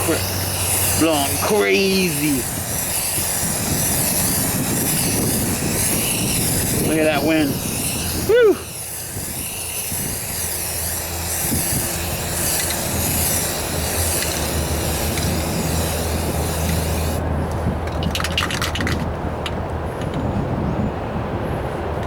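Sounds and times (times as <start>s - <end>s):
aerosol can spraying: 0.0s - 17.2s
wind buffeting microphone: 0.0s - 22.0s.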